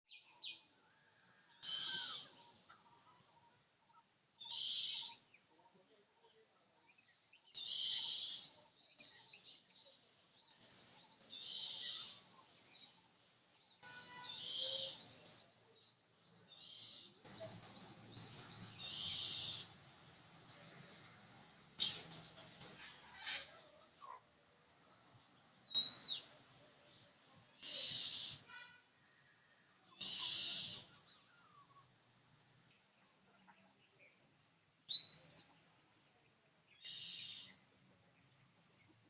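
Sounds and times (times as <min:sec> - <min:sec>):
harsh high-pitched bird calls: 0:01.5 - 0:02.6, 0:04.4 - 0:05.3, 0:07.5 - 0:09.3, 0:10.6 - 0:12.3, 0:13.7 - 0:15.5, 0:16.5 - 0:19.8, 0:25.7 - 0:26.3, 0:27.5 - 0:28.9, 0:29.9 - 0:31.9, 0:34.9 - 0:35.5, 0:36.7 - 0:37.6
quick bird chirps: 0:16.5 - 0:19.8, 0:27.6 - 0:28.8, 0:29.9 - 0:31.0.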